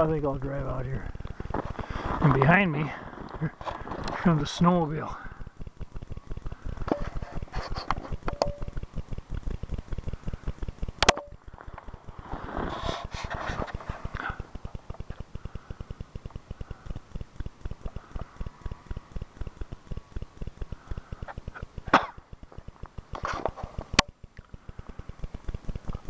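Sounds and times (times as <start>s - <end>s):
footsteps crunching in snow: 1.1s - 4.5s
sharp click: 11.0s - 11.4s.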